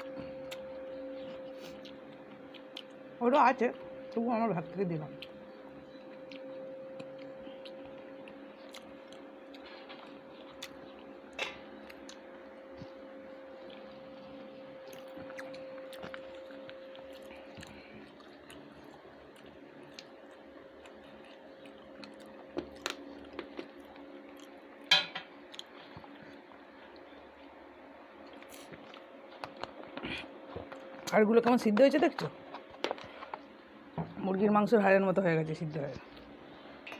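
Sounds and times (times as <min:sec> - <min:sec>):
steady hum: 0:00.0 - 0:36.9
chewing mouth sounds: 0:06.2 - 0:11.2, 0:12.8 - 0:24.7.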